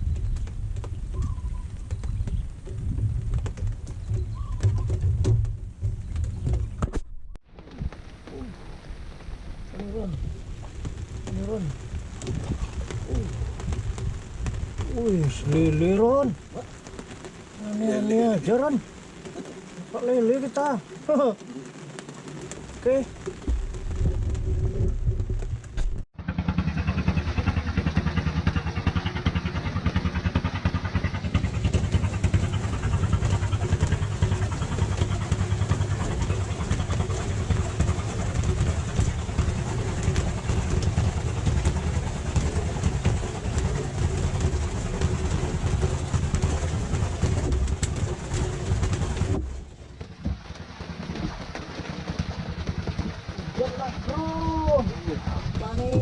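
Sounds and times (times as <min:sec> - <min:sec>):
engine droning: 0:23.8 - 0:56.0.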